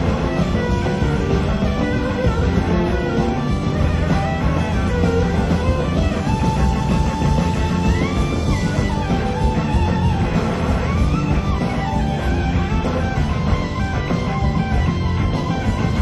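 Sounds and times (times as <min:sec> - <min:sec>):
rock band playing: 0:00.0 - 0:16.0
slide guitar solo: 0:00.0 - 0:16.0.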